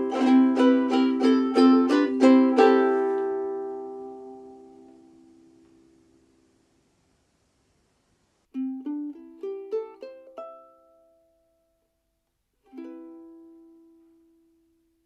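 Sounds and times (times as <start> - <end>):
ukulele plucked notes and chord: 0.0 - 5.4, 8.5 - 11.7, 12.6 - 14.8.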